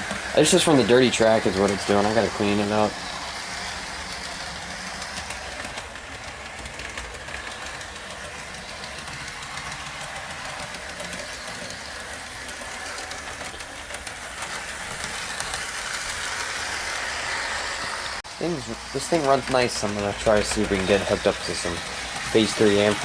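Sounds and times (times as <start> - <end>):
model train motor hum: 0.0 - 23.0
wheels clicking over rails: 0.0 - 23.0.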